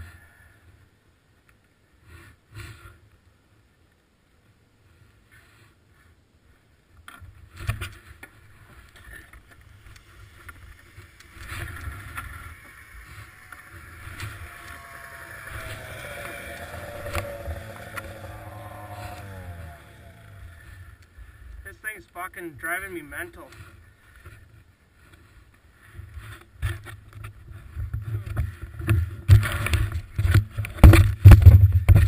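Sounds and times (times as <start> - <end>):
snowmobile engine running: 9.1 - 21.8.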